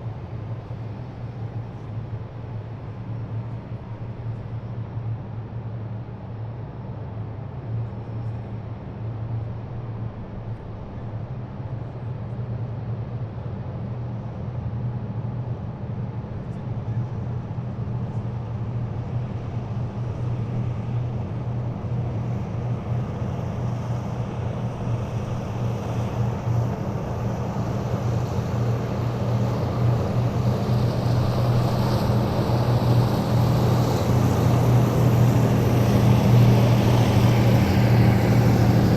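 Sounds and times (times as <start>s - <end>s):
diesel engines humming: 23.8s - 38.9s.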